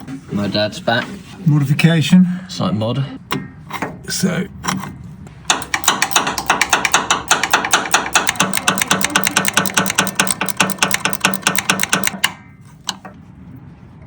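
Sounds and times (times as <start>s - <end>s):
rapid knocks on metal: 5.5s - 12.5s.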